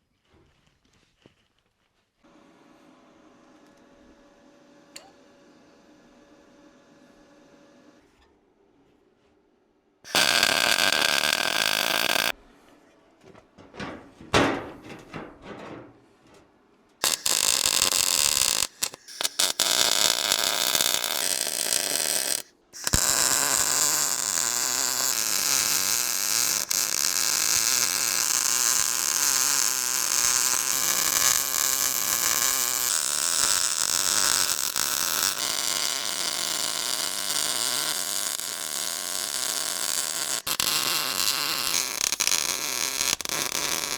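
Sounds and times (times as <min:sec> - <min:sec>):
electric arc welding: 0:10.1 - 0:12.3, 0:17.0 - 0:43.9.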